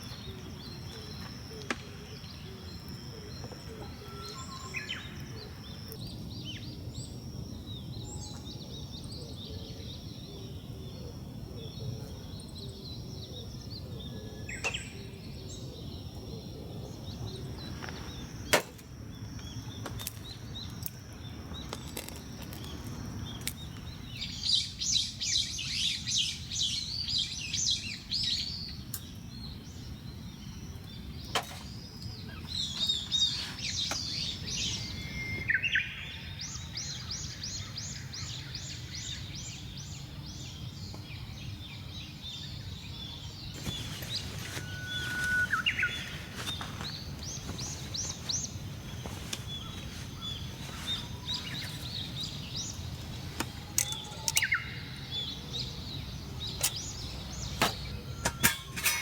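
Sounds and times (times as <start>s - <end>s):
low outdoor background: 0.0s - 59.0s
small bird chirping: 30.4s - 39.8s, 40.5s - 59.0s.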